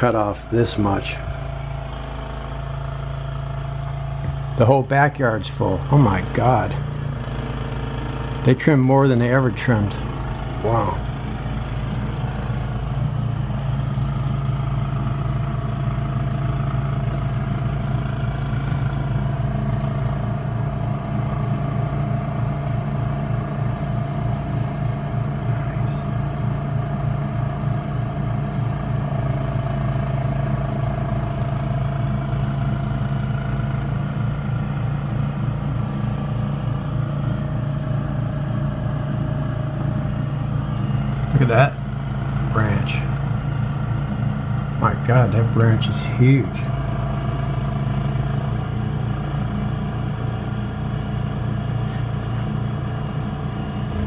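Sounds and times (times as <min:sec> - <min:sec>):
large engine running steadily: 0:00.0 - 0:54.0
faint wavering whine: 0:49.4 - 0:54.0.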